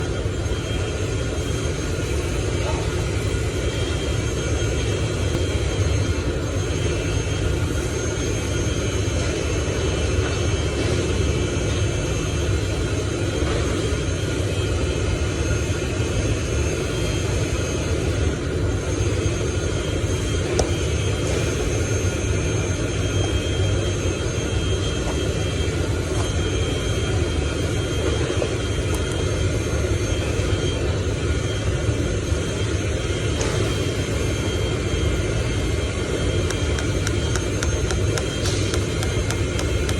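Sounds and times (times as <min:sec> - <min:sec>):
engine-like rumble: 0:32.5 - 0:39.9.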